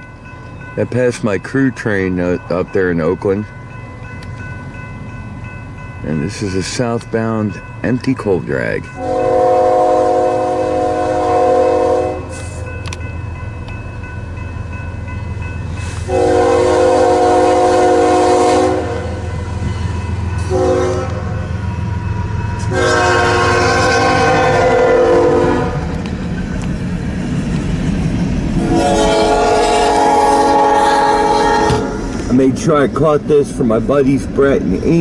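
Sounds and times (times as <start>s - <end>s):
train rumble: 0.0s - 35.0s
locomotive air horn blasts: 9.0s - 12.7s, 16.0s - 19.3s, 20.4s - 21.4s, 22.7s - 25.9s, 28.6s - 32.0s.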